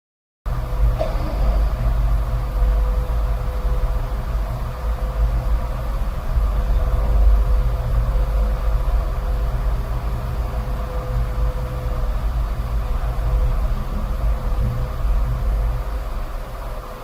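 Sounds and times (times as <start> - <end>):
production line machinery rumble: 0.5 - 17.0.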